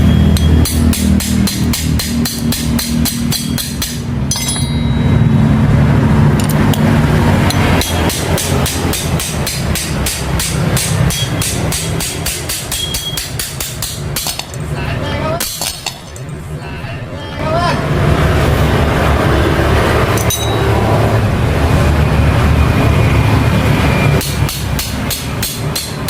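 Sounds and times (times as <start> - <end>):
hammer striking metal: 0.0 - 14.8, 15.4 - 16.4, 20.1 - 20.8, 24.2 - 26.0.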